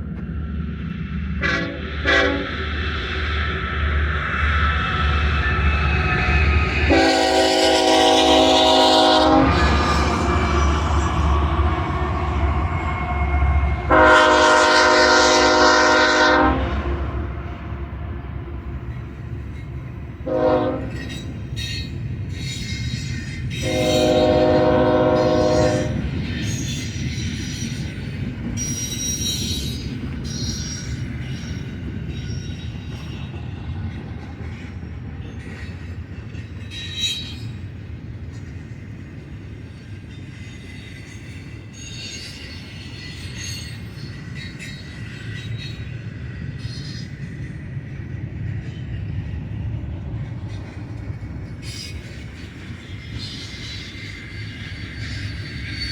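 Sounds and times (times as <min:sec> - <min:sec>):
freight train rumbling past: 0:00.0 - 0:55.9
locomotive air horn: 0:01.4 - 0:02.6, 0:06.9 - 0:10.3, 0:13.7 - 0:18.2, 0:20.2 - 0:21.0, 0:23.6 - 0:26.0
wheel squeal: 0:28.6 - 0:33.0, 0:51.6 - 0:55.9.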